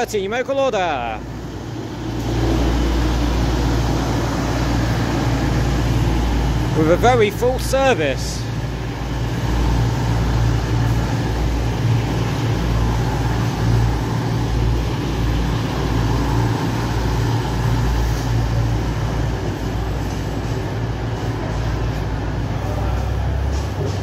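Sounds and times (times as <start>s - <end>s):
diesel train engine drone: 0.0s - 24.0s
rail rumble: 1.2s - 24.0s.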